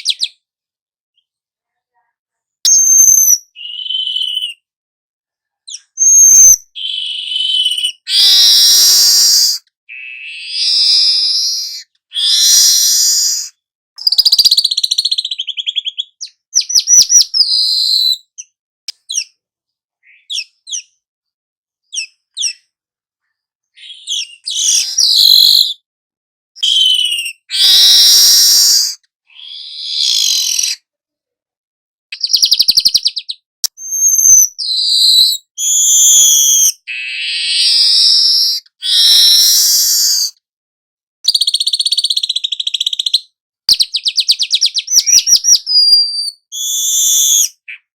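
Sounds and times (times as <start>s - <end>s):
songbird chirping: 0.0s - 0.5s, 2.6s - 4.7s, 9.9s - 12.0s, 13.4s - 19.4s, 20.0s - 21.0s, 21.8s - 22.7s, 23.7s - 25.8s, 26.6s - 27.8s, 32.2s - 38.2s.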